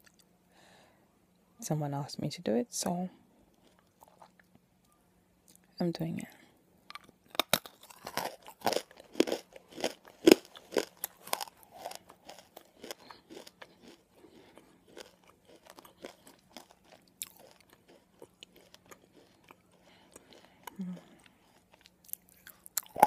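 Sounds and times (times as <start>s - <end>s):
crunchy chewing: 3.5s - 4.5s, 6.9s - 23.0s.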